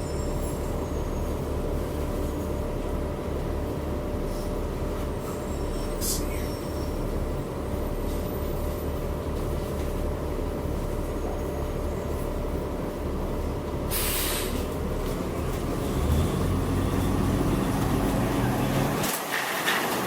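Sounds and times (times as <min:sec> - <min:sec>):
bus engine rumble with whine: 0:00.0 - 0:20.0
short air hiss: 0:13.9 - 0:14.6.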